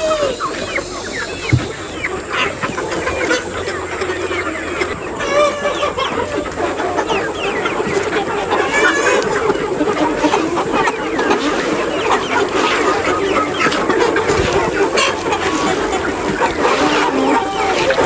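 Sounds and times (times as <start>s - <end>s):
chickens calling: 0.0s - 18.0s
low thump: 1.5s - 2.0s.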